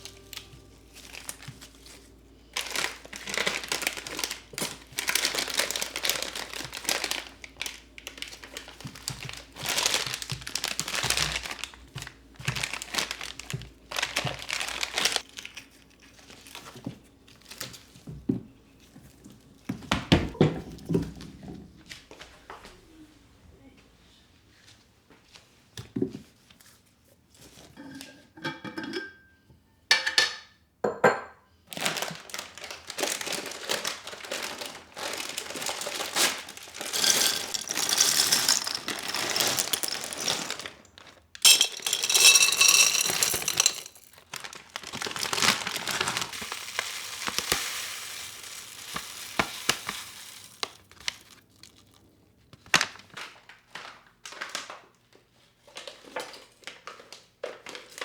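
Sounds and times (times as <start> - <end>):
plastic packaging crinkling: 0.0 - 17.9, 31.7 - 58.0.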